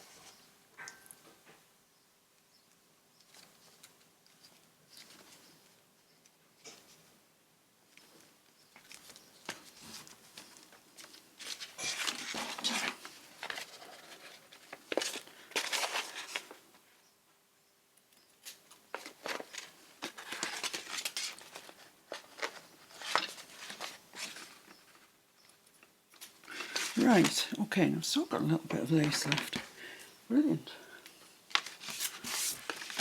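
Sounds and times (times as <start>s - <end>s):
paper rustling and crinkling: 3.3s - 5.8s, 8.0s - 16.8s, 18.4s - 25.2s, 26.2s - 27.7s, 28.3s - 29.8s, 31.5s - 33.0s.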